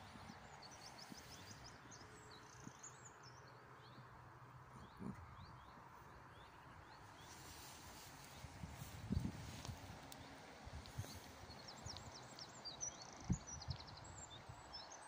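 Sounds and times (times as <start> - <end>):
small bird chirping: 4.8 - 15.0.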